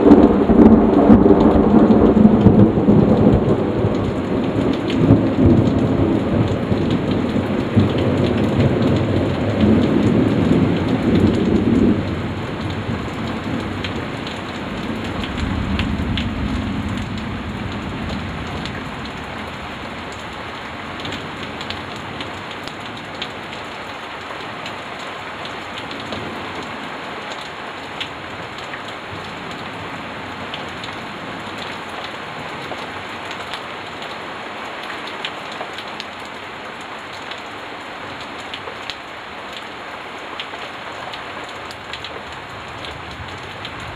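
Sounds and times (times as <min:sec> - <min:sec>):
thunder rumbling: 0:00.0 - 0:22.3
heavy rain: 0:00.0 - 0:43.9.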